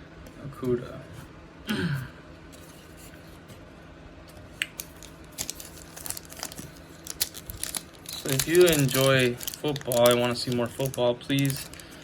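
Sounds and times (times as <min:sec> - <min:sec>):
trading cards clicking and rustling: 0:04.6 - 0:12.0.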